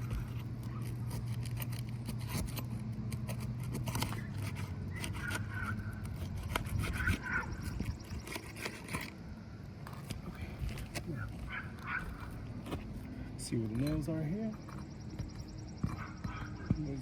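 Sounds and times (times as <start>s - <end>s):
metal tool scraping shingles: 0.0s - 9.2s
steady low hum: 0.0s - 17.0s.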